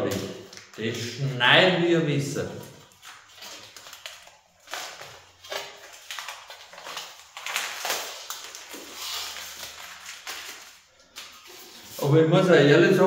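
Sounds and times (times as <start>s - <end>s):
steel sheet scraping and crinkling: 2.8s - 12.3s.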